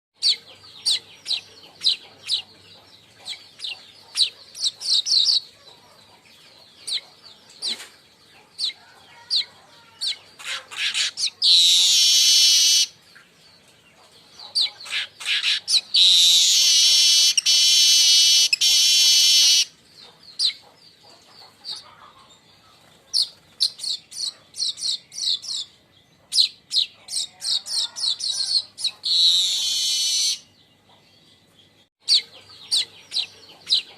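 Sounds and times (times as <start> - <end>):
bird chirping: 0.2 - 33.9
bird buzzy rattling trills: 14.8 - 19.7.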